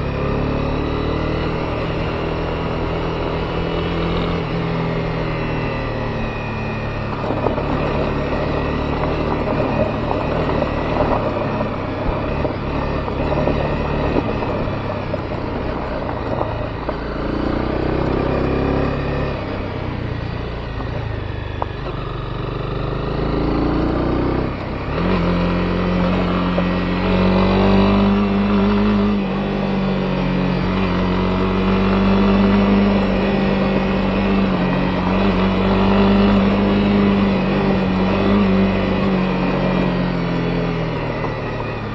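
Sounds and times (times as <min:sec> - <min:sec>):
motorcycle engine running: 0:00.0 - 0:41.9
road noise: 0:00.0 - 0:41.9
wind noise: 0:01.5 - 0:22.0.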